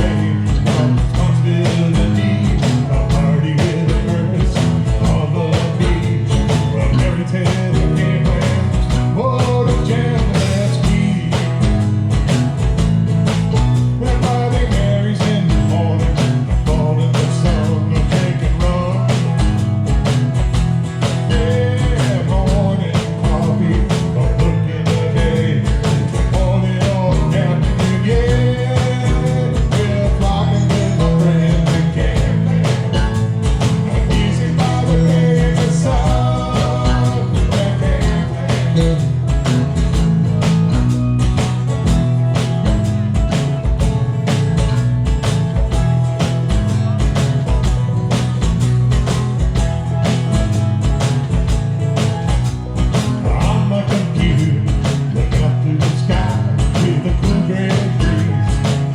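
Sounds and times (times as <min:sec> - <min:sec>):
bass guitar: 0:00.0 - 0:58.9
drum kit steady beat: 0:00.0 - 0:58.9
guitar: 0:00.0 - 0:58.9.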